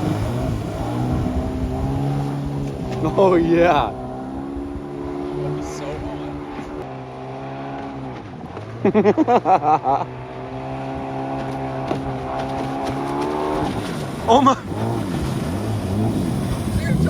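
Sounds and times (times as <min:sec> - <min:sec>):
watercraft engine running: 0:00.0 - 0:17.0
person shouting: 0:16.8 - 0:17.0.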